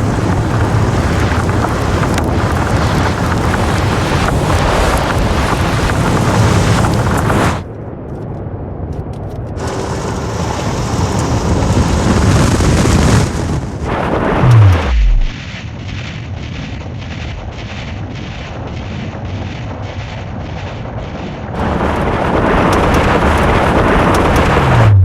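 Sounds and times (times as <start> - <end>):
rushing whoosh and rumble: 9.6 - 25.0
deep bass drop: 13.8 - 15.3, 19.2 - 25.0
muffled pulsing beat: 14.4 - 15.3, 18.3 - 25.0.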